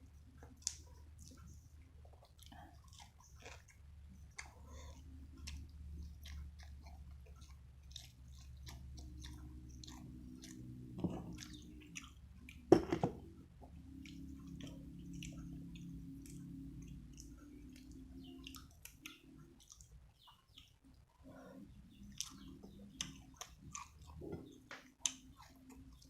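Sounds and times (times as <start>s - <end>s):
chewing and crunching food: 0.0s - 26.0s
low hum: 3.3s - 19.6s.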